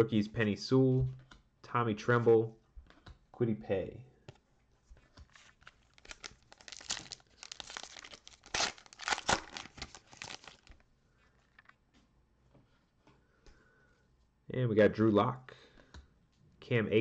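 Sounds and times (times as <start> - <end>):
wrapper being torn and crinkled: 5.8 - 10.8.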